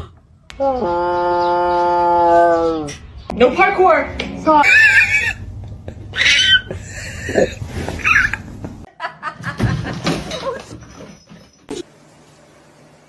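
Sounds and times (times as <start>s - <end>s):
people laughing: 4.6s - 10.8s.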